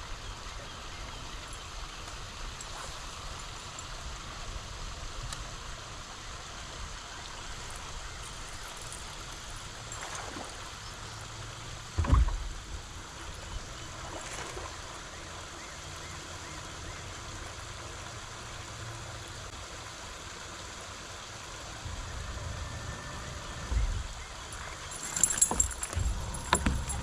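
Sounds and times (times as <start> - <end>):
water washing: 21.5 - 27.0.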